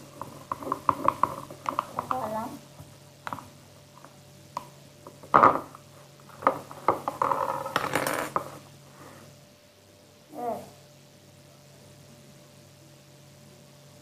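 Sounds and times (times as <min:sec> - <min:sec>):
containers clicking and knocking: 0:00.0 - 0:08.6
rustling and scraping: 0:05.1 - 0:09.3.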